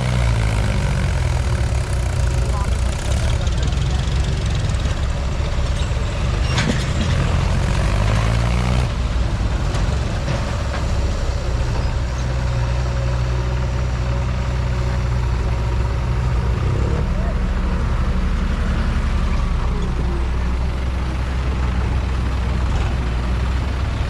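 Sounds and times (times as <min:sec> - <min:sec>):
tractor diesel engine: 0:00.0 - 0:24.0.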